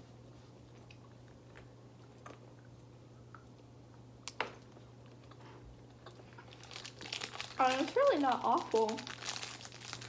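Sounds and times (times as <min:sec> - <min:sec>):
steady low hum: 0:00.0 - 0:10.0
chewing candies: 0:05.0 - 0:10.0.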